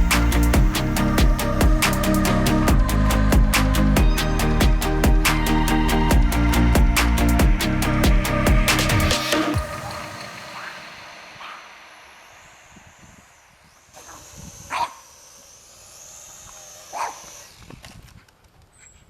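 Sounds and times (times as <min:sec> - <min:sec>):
faint high whine: 0:00.0 - 0:17.8
dog barking: 0:14.1 - 0:15.0, 0:16.9 - 0:17.2.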